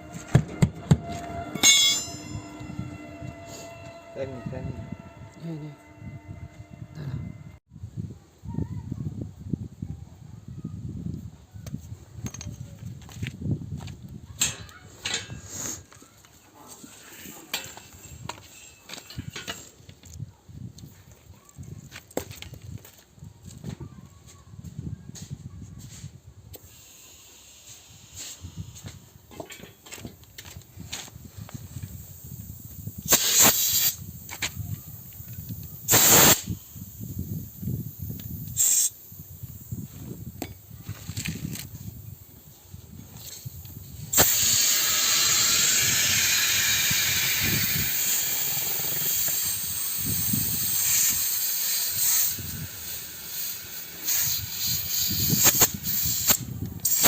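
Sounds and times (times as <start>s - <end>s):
low rumble: 0.0s - 7.6s
metal hand tools clinking: 1.5s - 2.5s
compressed air hissing from hose: 26.6s - 29.0s, 31.2s - 40.4s, 43.2s - 57.0s.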